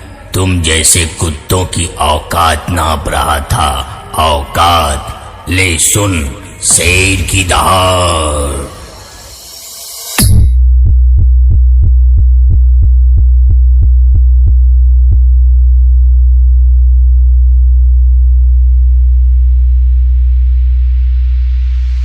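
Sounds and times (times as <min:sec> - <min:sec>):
deep electronic bass tone: 0:10.2 - 0:22.0.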